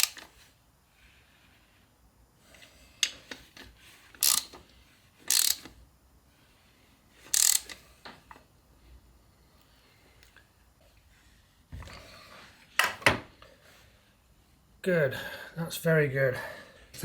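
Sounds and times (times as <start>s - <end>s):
ratchet spanner clicking: 0.0s - 0.3s, 4.2s - 4.6s, 5.3s - 5.8s, 7.3s - 7.8s.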